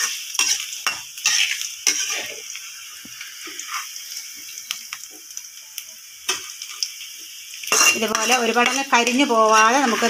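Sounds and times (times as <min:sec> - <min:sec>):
metal spoon scraping wok: 0:00.0 - 0:02.5, 0:07.6 - 0:10.0
vegetables sizzling in oil: 0:00.0 - 0:10.0.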